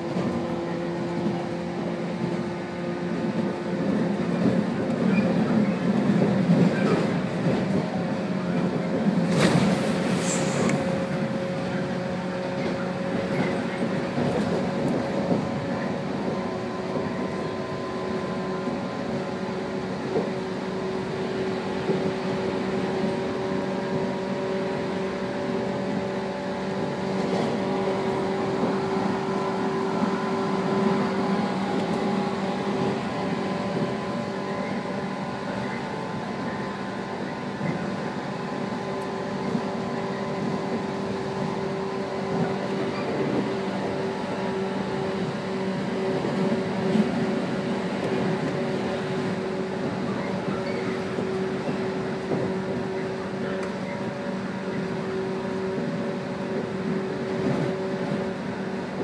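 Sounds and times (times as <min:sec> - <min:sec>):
rumble of wheels on rail: 0:00.0 - 0:59.0.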